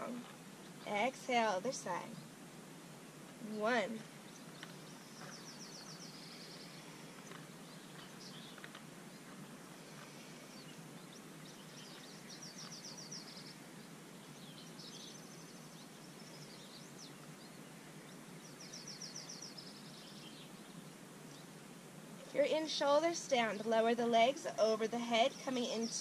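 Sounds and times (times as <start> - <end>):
faint hiss: 0.0 - 26.0
songbirds singing: 0.0 - 26.0
bird chirps: 4.2 - 21.5.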